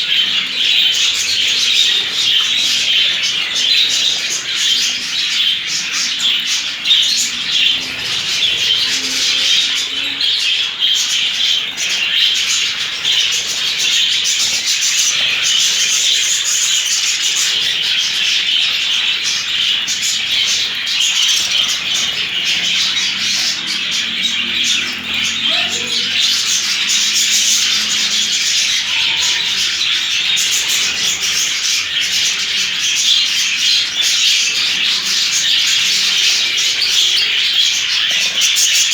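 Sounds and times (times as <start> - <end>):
flock of budgerigars chirping: 0.0 - 38.9.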